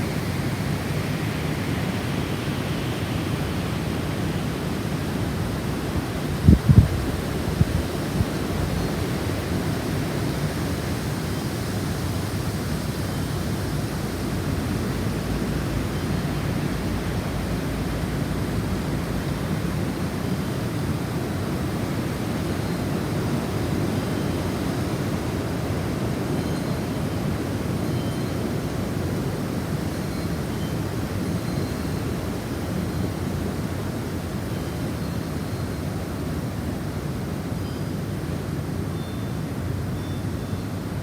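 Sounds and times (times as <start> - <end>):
wind blowing: 0.0 - 23.6.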